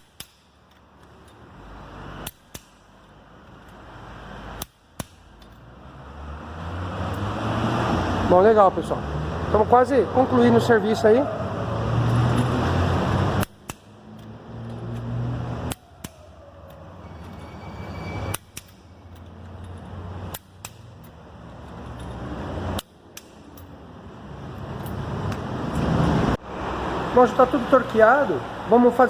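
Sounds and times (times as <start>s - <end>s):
torque wrench clicks: 2.2s - 2.9s, 13.4s - 16.8s, 18.3s - 22.1s.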